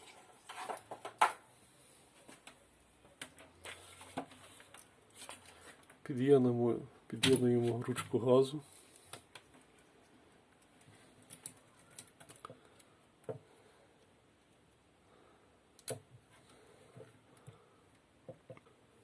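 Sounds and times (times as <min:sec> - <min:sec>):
plastic connectors clicking: 0:10.6 - 0:12.9, 0:15.8 - 0:16.0.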